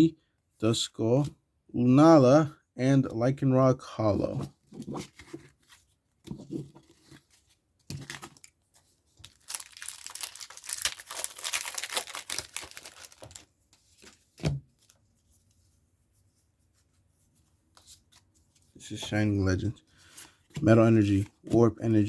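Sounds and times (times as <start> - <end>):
foil wrapper crinkling: 9.2 - 13.5
wrapper ripping open: 9.2 - 13.5.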